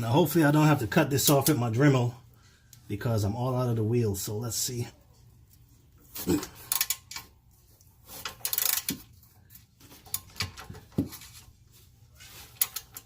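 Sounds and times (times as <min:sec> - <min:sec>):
ratchet clicking: 0:06.7 - 0:07.2, 0:08.3 - 0:09.0.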